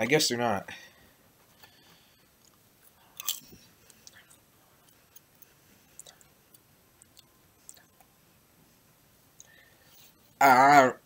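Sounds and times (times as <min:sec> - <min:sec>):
person chewing popcorn: 0:02.4 - 0:08.1.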